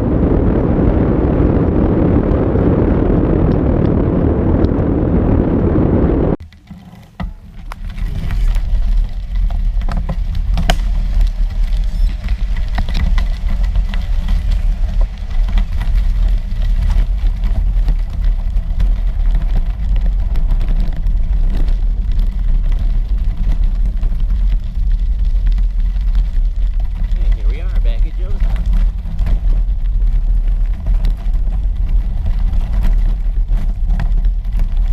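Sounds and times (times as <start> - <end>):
wind buffeting microphone: 0.0 - 6.4, 7.4 - 34.9.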